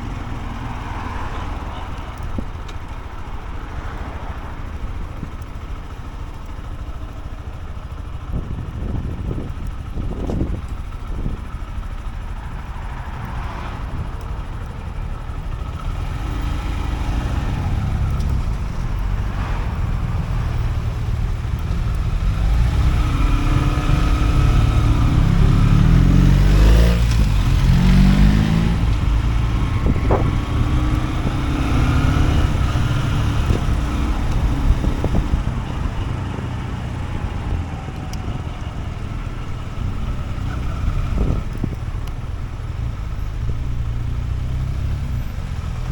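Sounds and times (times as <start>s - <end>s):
motorcycle engine running: 0.0s - 45.9s
wind rush: 22.3s - 43.8s.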